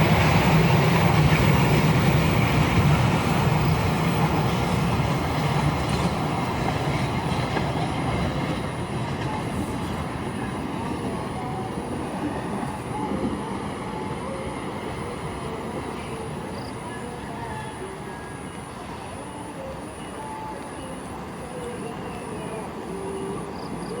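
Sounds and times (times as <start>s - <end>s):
train wheels rumbling: 0.0s - 16.7s.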